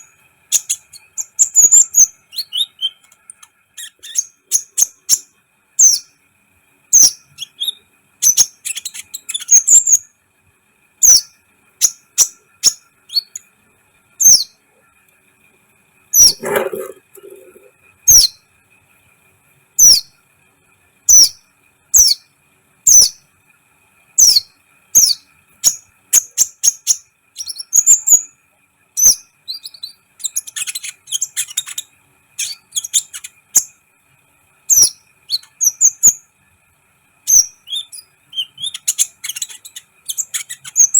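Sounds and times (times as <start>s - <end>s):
sunbird chirping: 0.0s - 3.1s, 3.8s - 6.2s, 24.2s - 28.3s, 37.3s - 40.9s
bird twittering: 16.2s - 18.4s.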